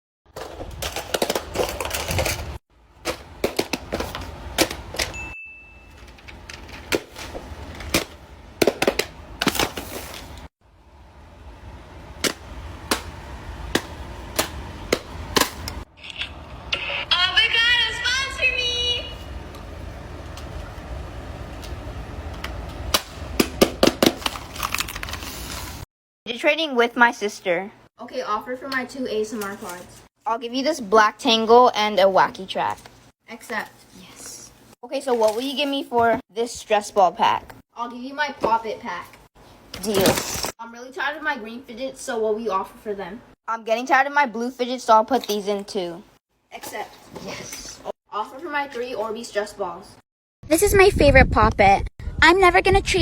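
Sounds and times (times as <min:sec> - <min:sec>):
low steady hum: 0:00.8 - 0:23.6
brief high ring: 0:05.1 - 0:06.0.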